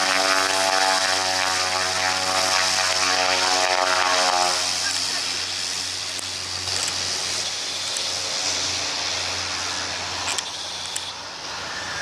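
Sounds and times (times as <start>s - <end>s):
turboprop engine running: 0.0s - 12.0s
faint clicks: 10.2s - 11.1s.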